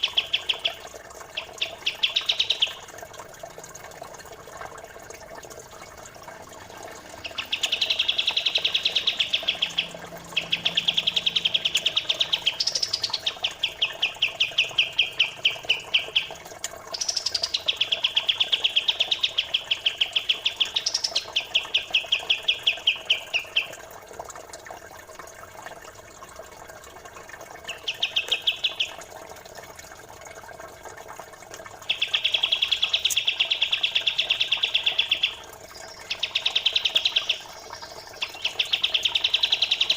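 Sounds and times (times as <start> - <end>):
running water babble: 0.0 - 39.9
bird rapid trills: 6.7 - 23.8, 31.8 - 39.9.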